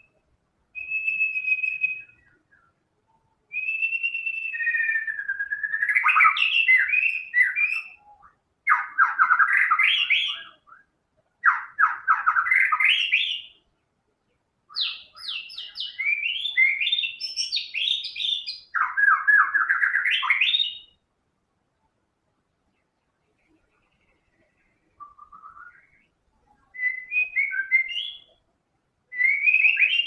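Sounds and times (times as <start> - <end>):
songbird whistling rapid notes: 0.8 - 2.7, 3.5 - 8.1, 8.7 - 13.6, 14.7 - 21.0, 25.0 - 26.1, 26.8 - 28.3, 29.1 - 30.0.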